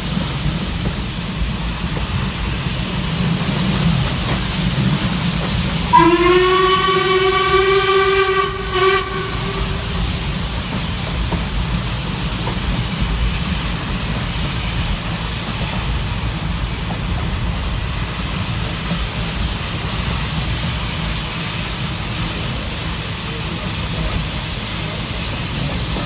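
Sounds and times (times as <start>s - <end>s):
steam train rumbling and hissing: 0.0s - 26.0s
steam locomotive whistle: 5.8s - 10.6s.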